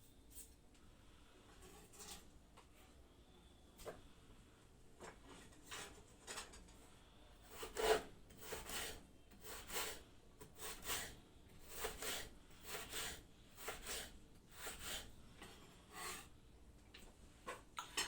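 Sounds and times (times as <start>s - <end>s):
knife cutting potato on board: 7.5s - 15.1s.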